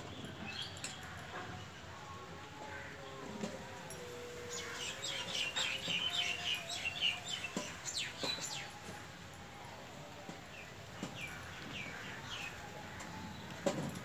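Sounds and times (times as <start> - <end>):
birds chirping: 4.4 - 9.0, 10.5 - 14.0.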